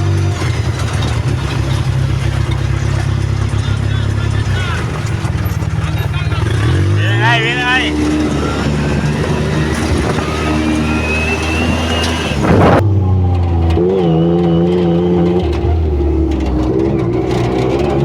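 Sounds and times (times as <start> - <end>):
vehicle engine revving: 0.0 - 18.0
thin rising whine: 7.0 - 14.2.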